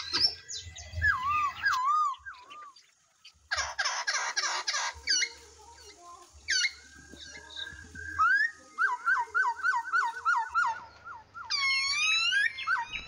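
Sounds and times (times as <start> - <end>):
rapid coarse bird calls: 0.0 - 13.0
bird swooping whistle: 6.5 - 13.0
sharp falling bird chirps: 6.5 - 13.0.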